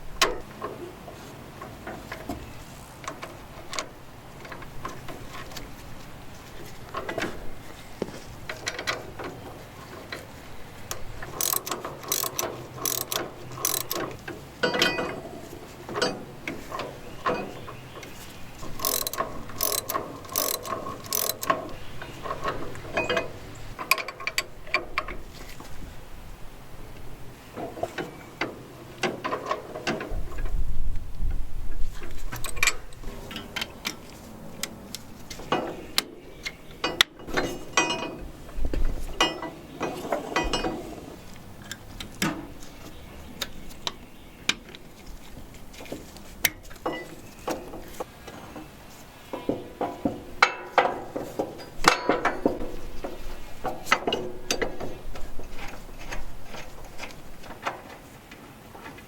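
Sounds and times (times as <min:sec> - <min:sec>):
hand tools and metal parts clinking: 0:01.6 - 0:25.7, 0:32.0 - 0:38.3, 0:39.0 - 0:42.9, 0:43.5 - 0:48.7, 0:49.3 - 0:58.0
ratchet clicking: 0:10.9 - 0:14.2, 0:18.6 - 0:21.8.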